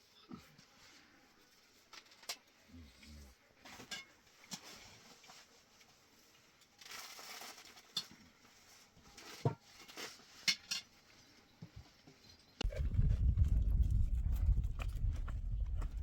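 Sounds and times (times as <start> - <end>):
loud low rumbling: 12.6 - 16.0.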